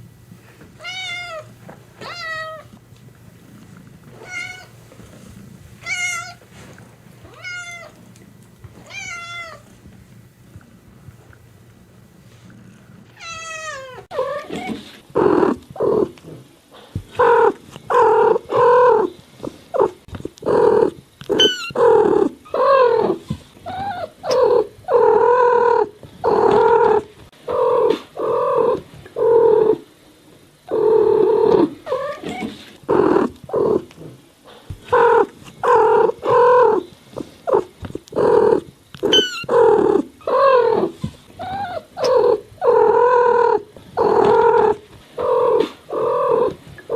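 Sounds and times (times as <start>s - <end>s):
cat meowing: 5.8s - 6.4s, 7.3s - 8.0s, 8.8s - 9.6s.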